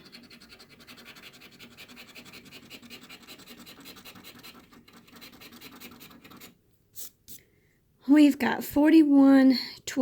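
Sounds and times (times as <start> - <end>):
coin scratching lottery ticket: 0.0 - 6.6.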